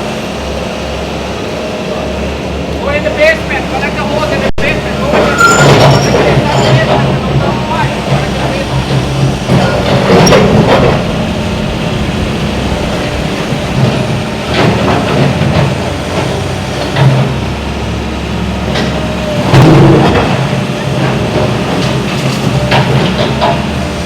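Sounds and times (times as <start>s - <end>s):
diesel engine running: 0.0s - 24.0s
wood and masonry crashing: 4.7s - 17.4s.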